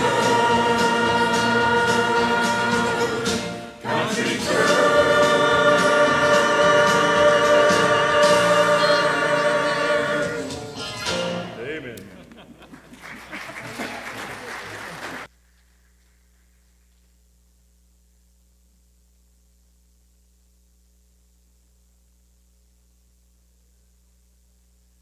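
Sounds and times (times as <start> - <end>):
church choir singing: 0.0 - 10.8.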